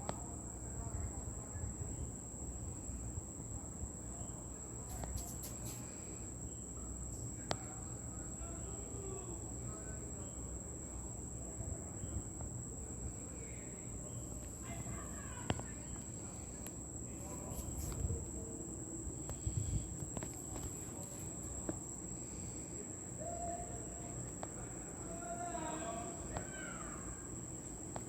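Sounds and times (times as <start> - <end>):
insects trilling: 0.0 - 28.0
low background rumble: 10.6 - 25.4.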